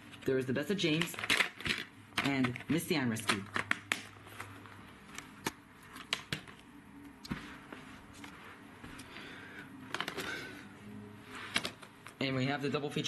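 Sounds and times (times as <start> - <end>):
low steady hum: 0.0 - 13.0
plastic cases clicking and tapping: 0.9 - 6.7, 9.9 - 10.4.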